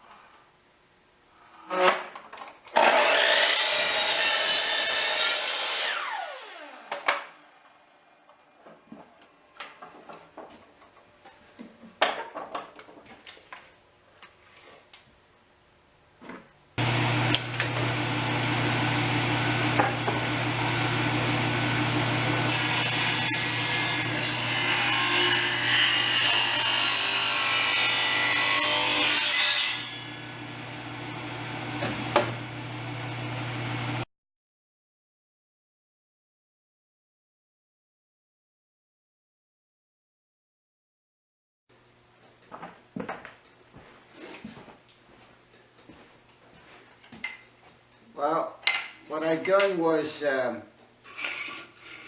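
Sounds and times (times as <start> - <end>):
power saw cutting wood: 2.7 - 8.6, 16.8 - 34.0.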